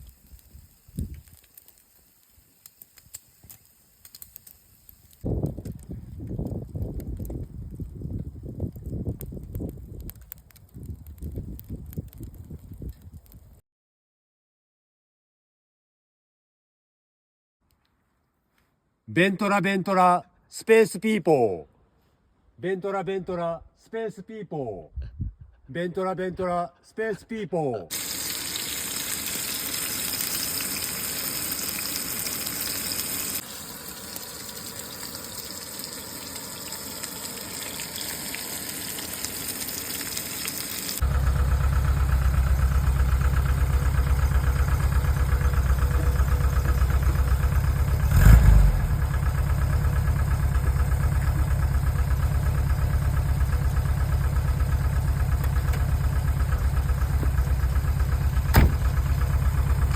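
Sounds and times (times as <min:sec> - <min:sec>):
even hiss: 0:27.9 - 0:41.0
engine knock: 0:41.0 - 0:48.1, 0:48.9 - 0:59.9
engine idling: 0:41.0 - 0:59.9.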